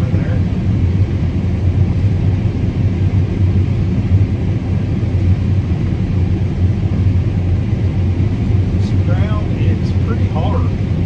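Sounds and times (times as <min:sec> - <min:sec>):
combine harvester engine droning: 0:00.0 - 0:11.0.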